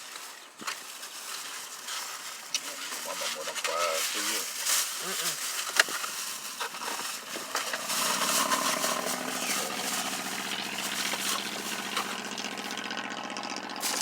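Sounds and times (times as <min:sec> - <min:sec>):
vehicle engine idling: 0:06.2 - 0:14.0.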